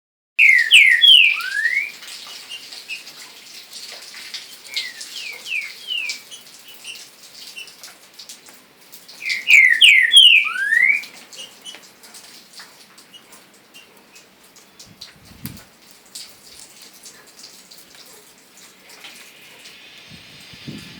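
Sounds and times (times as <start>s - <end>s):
songbird whistled phrase: 0.4s - 1.9s, 9.2s - 11.0s.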